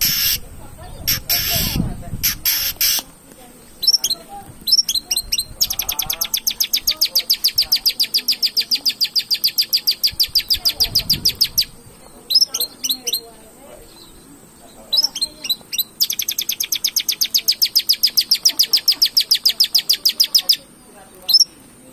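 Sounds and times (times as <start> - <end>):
bird singing rapid notes: 3.6 - 21.6.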